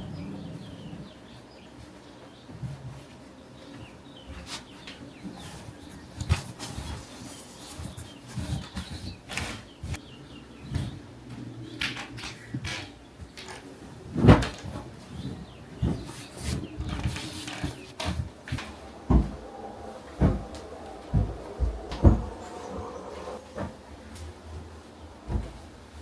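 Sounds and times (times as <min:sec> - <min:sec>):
soft thumps of bedding: 0:18.0 - 0:23.4.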